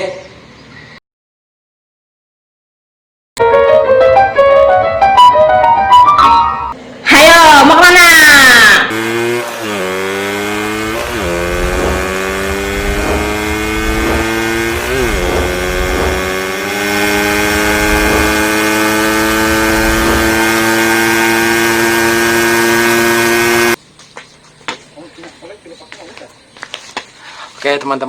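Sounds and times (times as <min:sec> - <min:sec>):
motorcycle engine accelerating: 0:08.7 - 0:23.8.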